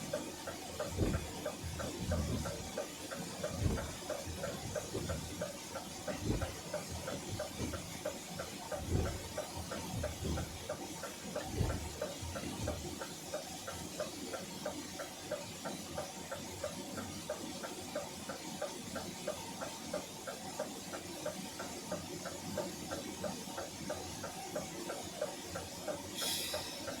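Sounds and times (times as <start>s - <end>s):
rapid mechanical ticking: 0.0s - 27.0s
short hiss: 26.2s - 27.0s.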